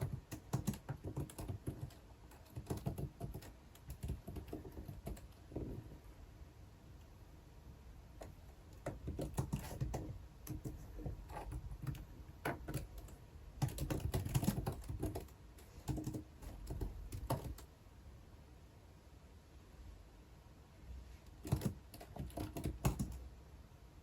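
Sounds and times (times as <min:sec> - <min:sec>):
typing on computer keyboard: 0:00.0 - 0:05.9, 0:08.2 - 0:17.7, 0:21.4 - 0:23.2.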